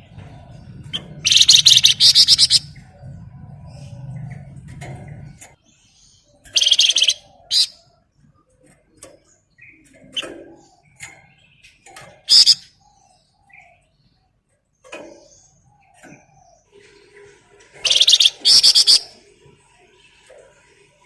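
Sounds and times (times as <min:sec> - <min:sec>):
songbird singing: 0:00.0 - 0:20.8.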